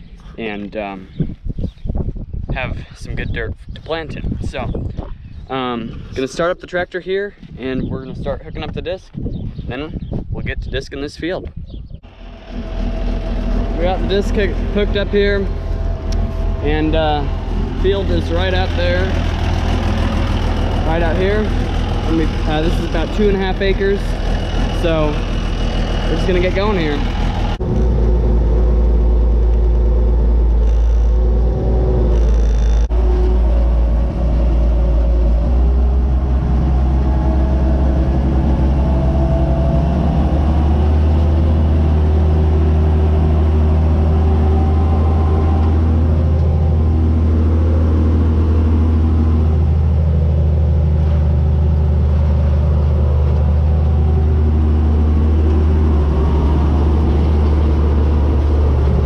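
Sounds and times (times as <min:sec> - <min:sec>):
tractor diesel engine rumbling: 0:12.0 - 0:59.0.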